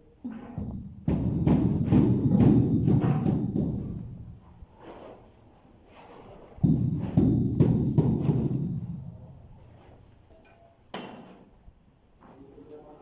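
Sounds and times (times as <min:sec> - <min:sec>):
deep booming thuds: 0:00.3 - 0:04.4, 0:06.6 - 0:09.6.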